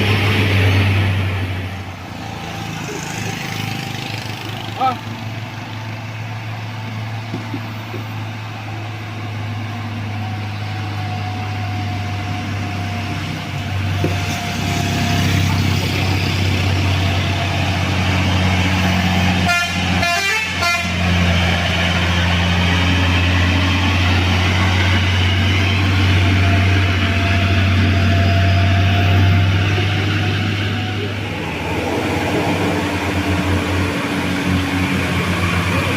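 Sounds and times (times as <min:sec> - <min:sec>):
diesel truck engine labouring: 0:00.0 - 0:35.9
horn blast: 0:19.4 - 0:21.1.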